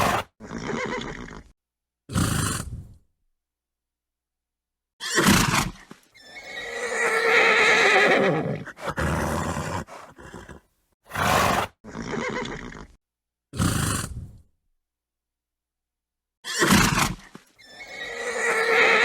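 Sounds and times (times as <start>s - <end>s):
horse snorting: 0.0s - 1.5s, 2.1s - 3.0s, 5.2s - 13.0s, 13.6s - 14.4s
horse whinnying: 0.0s - 1.5s, 5.0s - 13.0s, 16.4s - 19.0s
horse breathy calls: 6.2s - 13.0s.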